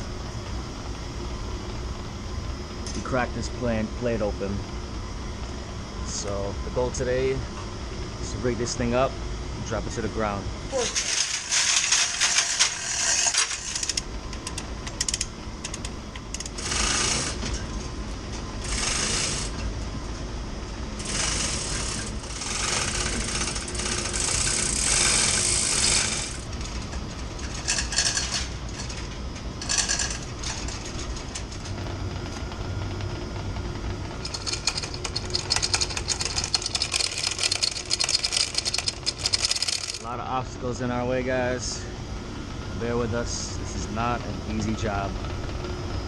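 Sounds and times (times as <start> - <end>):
steady low hum: 0.0 - 46.0
metal chain rattling: 29.6 - 31.5, 34.2 - 40.0.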